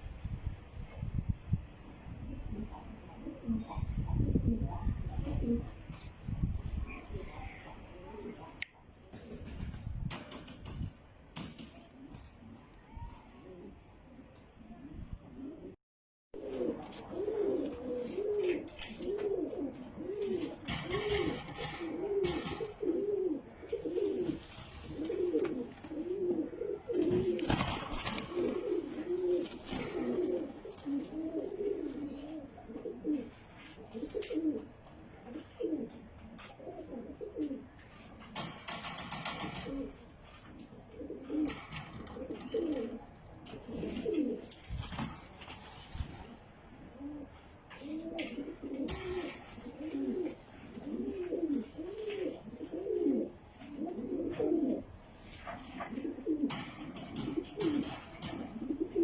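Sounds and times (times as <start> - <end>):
pigeons cooing: 2.2 - 6.0, 11.4 - 15.8, 16.4 - 59.0
rustling bursts: 16.4 - 32.2.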